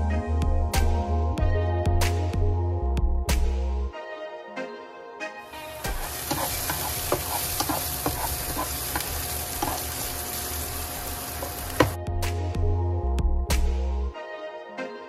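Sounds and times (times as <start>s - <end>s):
garlic sizzling in oil: 5.6s - 12.0s
spatula scraping and tapping pan: 5.8s - 10.3s, 11.3s - 12.0s.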